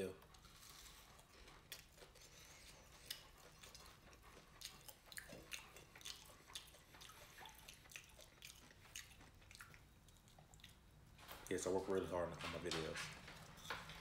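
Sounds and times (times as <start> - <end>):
person chewing crunchy food: 0.2 - 11.1.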